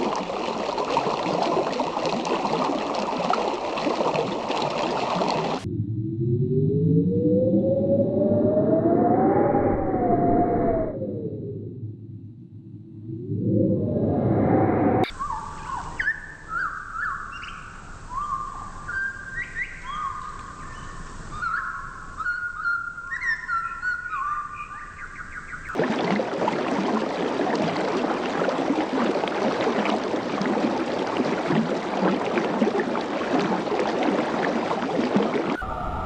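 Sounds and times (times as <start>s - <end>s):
bird whistling: 15.0s - 25.8s.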